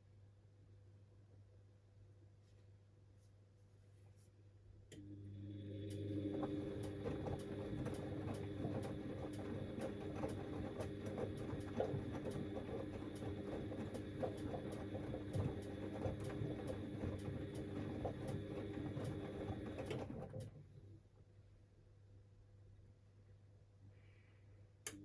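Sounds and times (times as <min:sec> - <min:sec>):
washing machine motor humming: 0:04.9 - 0:20.7
washing machine drum ticking: 0:05.8 - 0:20.5.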